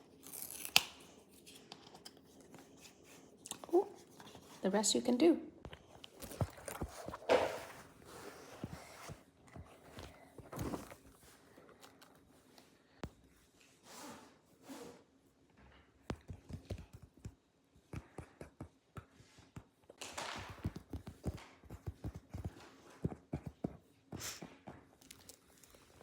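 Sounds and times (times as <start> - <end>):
packaging rustling: 6.0 - 12.3.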